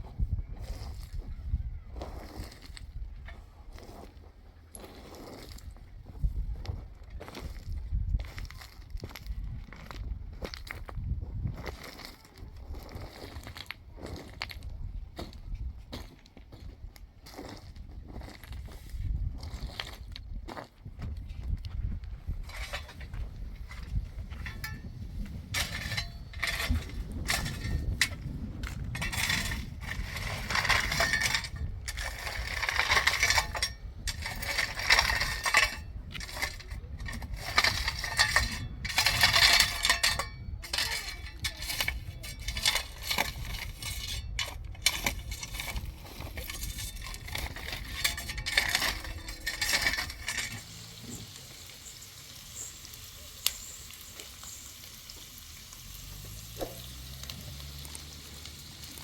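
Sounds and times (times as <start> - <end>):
gritty scraping strokes: 0.0 - 15.4, 21.4 - 55.2
clinks: 22.4 - 50.8.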